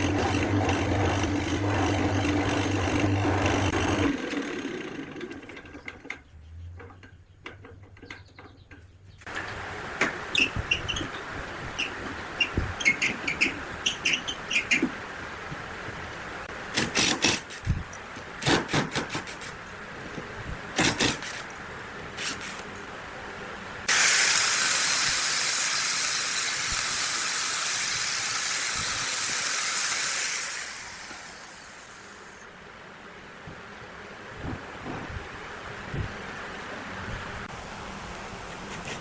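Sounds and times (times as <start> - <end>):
compressed air hissing: 23.9 - 32.4.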